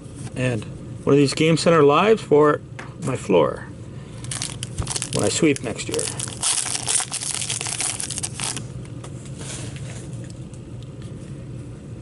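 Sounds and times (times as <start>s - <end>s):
card pack wrapper crinkling: 4.2s - 8.7s.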